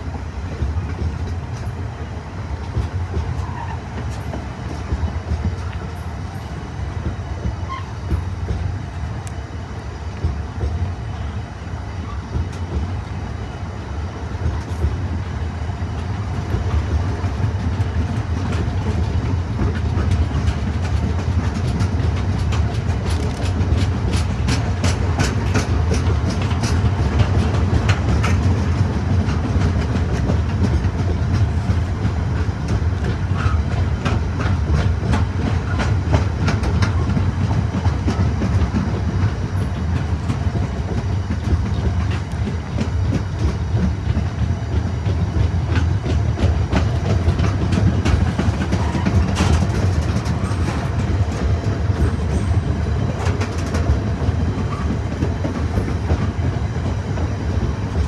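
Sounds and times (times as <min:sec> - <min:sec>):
freight train rumbling past: 0:00.0 - 0:58.0
wheels clattering over rail joints: 0:15.9 - 0:58.0.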